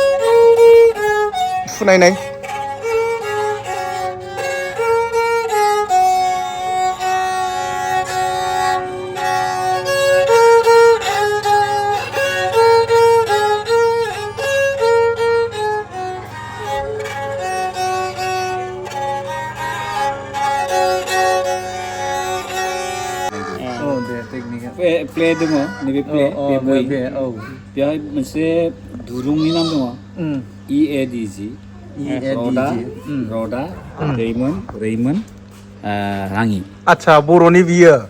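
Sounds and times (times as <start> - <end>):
bowed fiddle melody: 0.0 - 30.2
faint low hum: 27.4 - 37.5.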